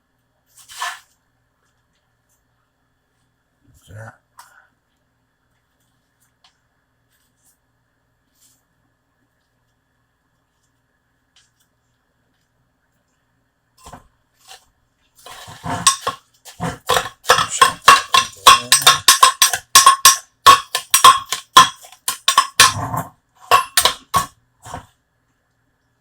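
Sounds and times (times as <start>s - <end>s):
metal utensil clinking on cookware: 15.3s - 24.8s.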